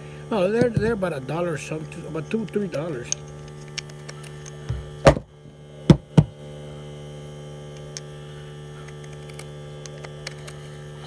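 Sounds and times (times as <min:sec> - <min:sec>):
electrical hum: 0:00.0 - 0:11.0
knocks of hard objects: 0:00.6 - 0:01.0, 0:04.6 - 0:05.3, 0:05.9 - 0:06.4.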